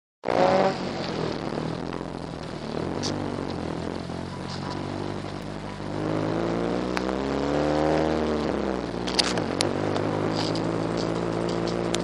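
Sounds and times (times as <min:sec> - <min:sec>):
car engine from inside cabin: 0:00.3 - 0:12.0
sharp ticks: 0:06.9 - 0:07.2, 0:08.9 - 0:12.0.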